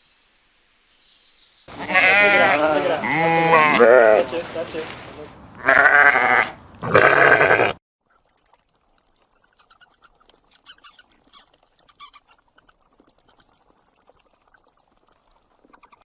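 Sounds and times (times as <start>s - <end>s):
small animal squeaking: 8.3s - 16.0s.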